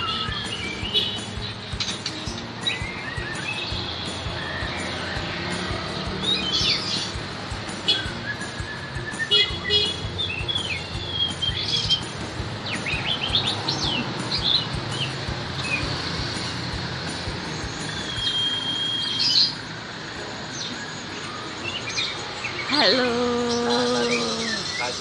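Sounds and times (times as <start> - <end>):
songbirds chirping and whistling: 0.0 - 25.0
steady background noise: 10.0 - 25.0.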